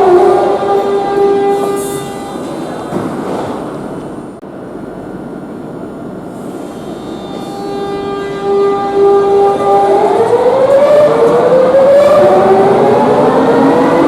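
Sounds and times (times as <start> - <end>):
train traction motors whining: 6.0 - 14.0.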